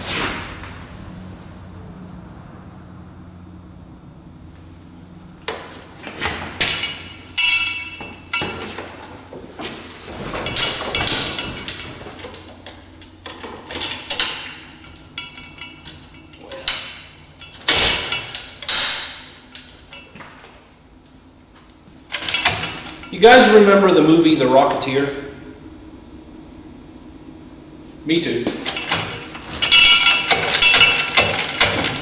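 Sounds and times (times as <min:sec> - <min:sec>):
hand tools clanking on metal: 0:05.5 - 0:20.4, 0:22.1 - 0:23.2, 0:28.4 - 0:32.0.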